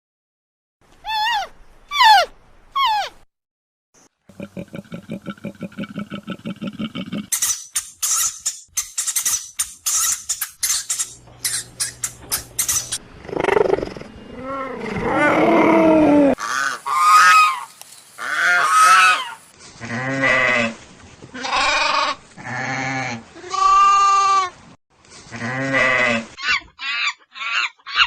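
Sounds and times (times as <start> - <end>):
wavering animal calls: 11.4 - 19.4.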